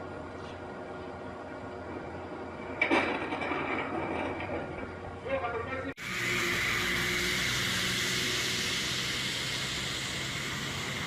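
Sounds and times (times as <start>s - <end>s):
moving car road and engine noise: 6.0s - 11.0s.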